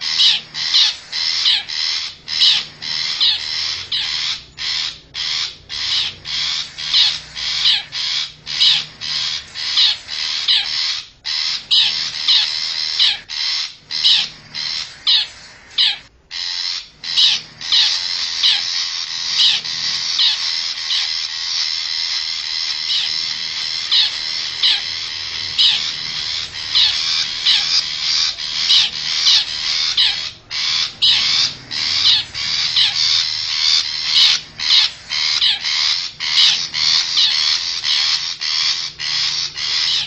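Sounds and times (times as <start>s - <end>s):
bird harsh scratchy calls: 0.0s - 40.0s.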